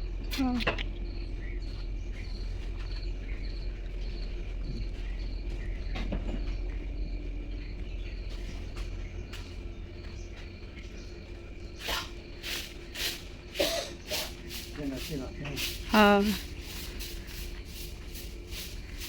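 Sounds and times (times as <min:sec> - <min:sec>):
wind rumble on microphone: 0:00.0 - 0:13.5
insect chirping: 0:00.0 - 0:19.0.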